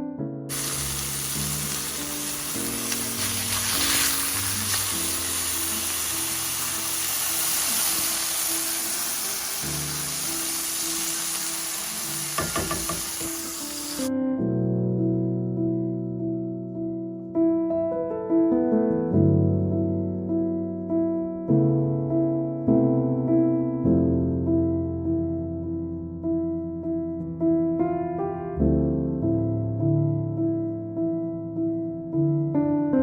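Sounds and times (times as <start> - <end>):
soft piano music: 0.0 - 33.0
food sizzling in a frying pan: 0.5 - 14.1.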